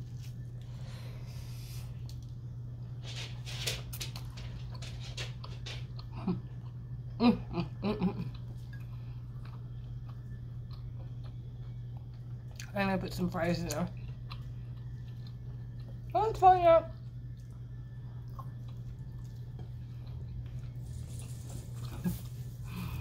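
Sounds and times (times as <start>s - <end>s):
low steady hum: 0.0s - 23.0s
biting and chewing food: 8.2s - 12.8s, 17.1s - 23.0s.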